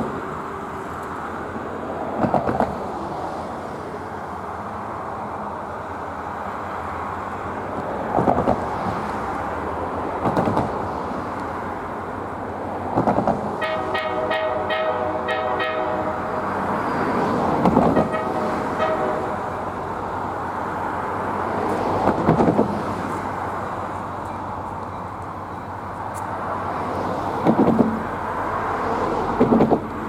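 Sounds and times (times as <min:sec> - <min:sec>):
train rumble: 0:00.0 - 0:30.0
locomotive air horn chord: 0:13.6 - 0:20.8.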